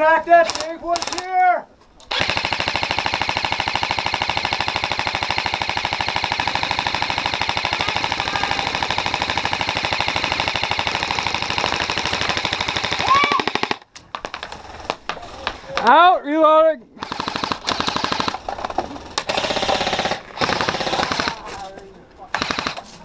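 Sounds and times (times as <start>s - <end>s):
airsoft gun firing full auto: 2.1s - 13.8s, 17.0s - 18.4s, 19.2s - 21.5s, 22.4s - 22.9s.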